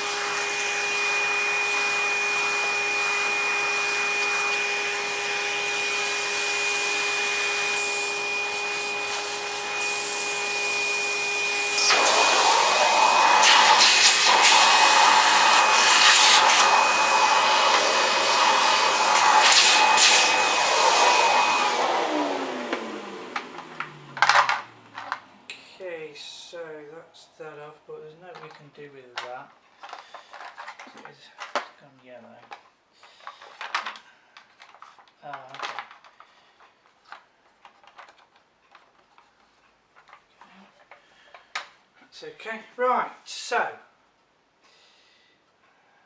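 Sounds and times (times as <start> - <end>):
electric motor humming: 0.0 - 25.2.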